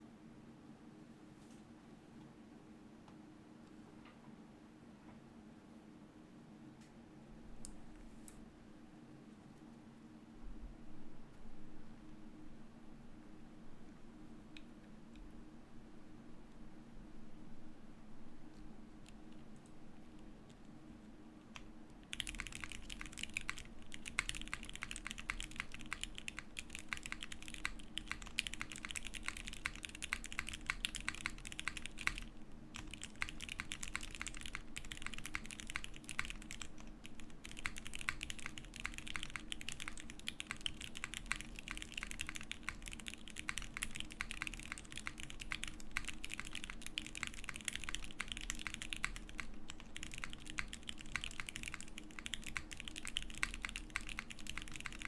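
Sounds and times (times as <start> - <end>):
fast typing on mechanical keyboard: 21.6 - 55.0.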